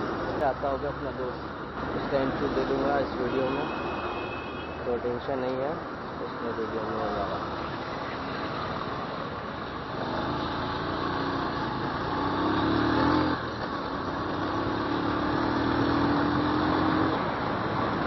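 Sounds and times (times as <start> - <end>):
motorcycle engine accelerating: 9.9 - 17.2.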